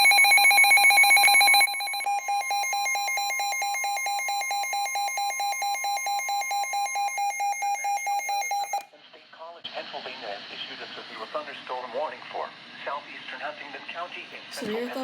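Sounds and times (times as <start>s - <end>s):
radio warning alarm tone: 0.0s - 8.8s.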